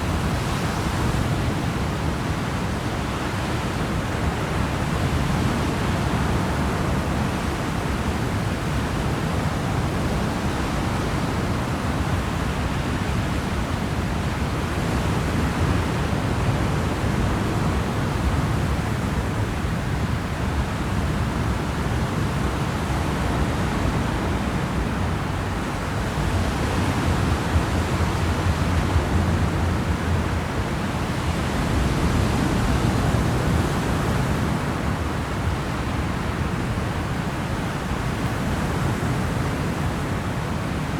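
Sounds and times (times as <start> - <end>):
wind: 0.0 - 40.9
ferry engine low rumble: 23.8 - 32.7.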